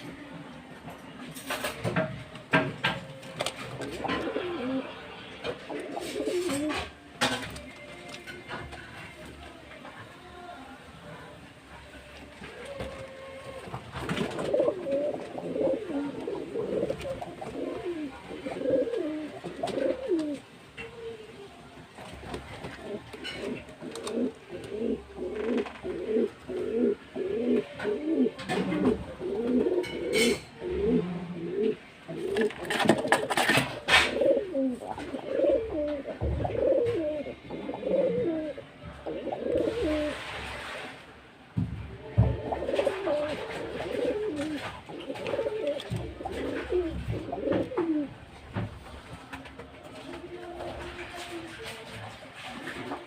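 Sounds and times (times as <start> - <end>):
pigeons cooing: 2.9 - 7.0, 12.4 - 21.2, 22.4 - 40.3, 42.3 - 48.3.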